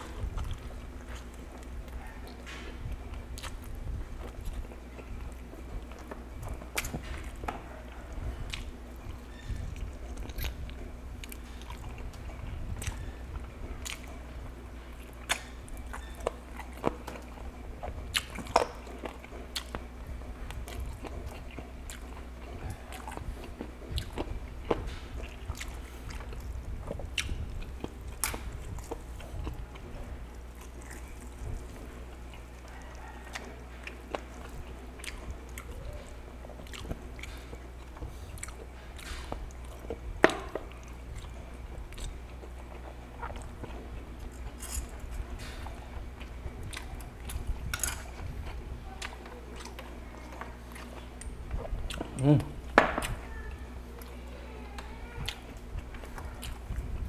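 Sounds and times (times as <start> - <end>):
close chewing with wet clicks: 0.0 - 57.0
low steady hum: 0.0 - 57.0.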